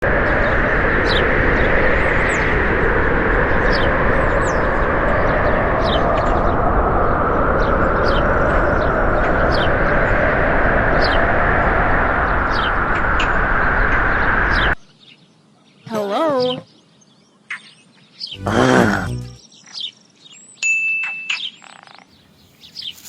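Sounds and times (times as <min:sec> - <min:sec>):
loud steady rushing noise: 0:00.0 - 0:14.8
small birds chirping: 0:21.4 - 0:23.0.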